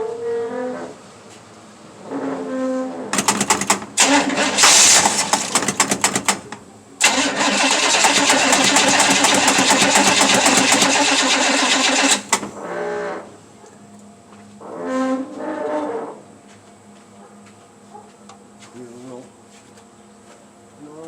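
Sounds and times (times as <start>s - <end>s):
engine starter cranking: 3.2s - 12.6s.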